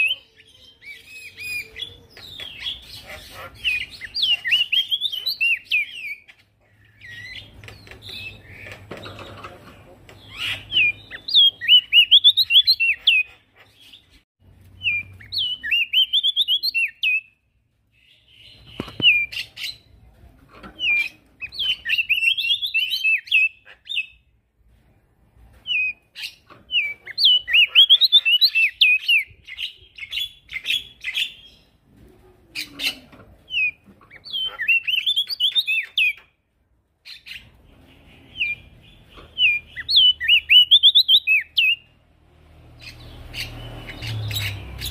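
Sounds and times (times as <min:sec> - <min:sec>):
bird singing high chirps: 0:00.0 - 0:08.8, 0:10.2 - 0:14.1, 0:14.8 - 0:17.4, 0:20.8 - 0:24.2, 0:25.6 - 0:31.7, 0:32.6 - 0:36.3, 0:37.0 - 0:42.0, 0:42.8 - 0:44.9.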